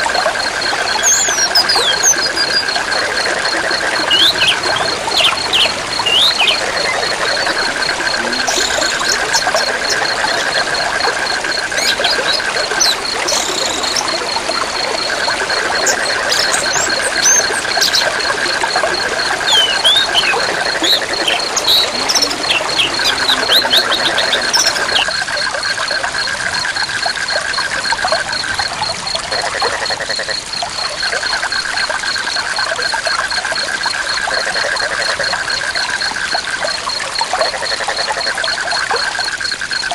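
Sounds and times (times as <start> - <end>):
lower pulsing call: 0.0 - 25.1
high pulsing insect call: 0.0 - 39.9
bird chirps: 0.6 - 25.1
river water rushing: 1.7 - 25.0.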